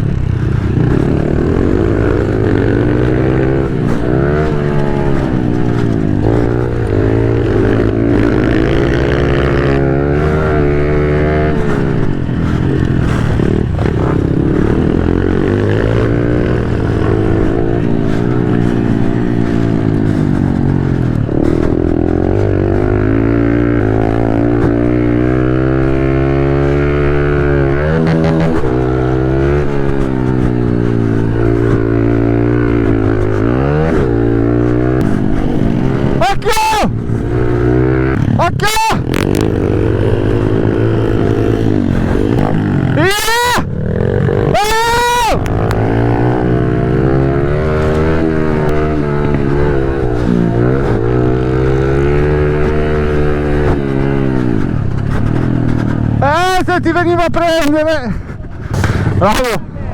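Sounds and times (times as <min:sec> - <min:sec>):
pit bike engine revving: 0:00.0 - 0:59.9.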